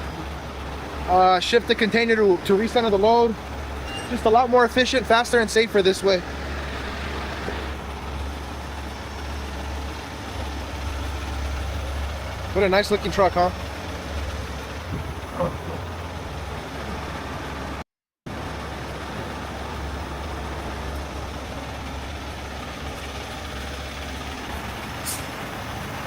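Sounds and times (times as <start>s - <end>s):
diesel truck engine running: 0.0s - 26.0s
short hiss: 25.0s - 25.4s.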